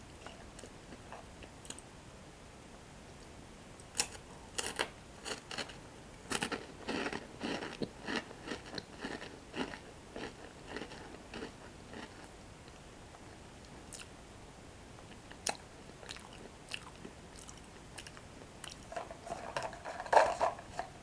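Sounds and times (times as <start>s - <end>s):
crunchy breadsticks being chewed: 3.8s - 14.1s, 15.0s - 21.0s.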